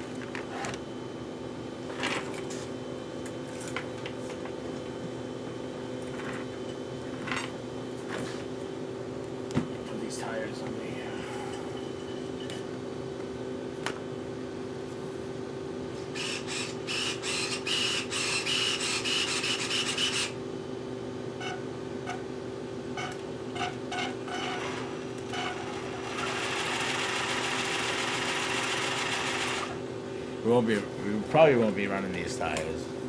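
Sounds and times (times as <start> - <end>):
steady low hum: 7.6 - 17.3, 29.7 - 33.0.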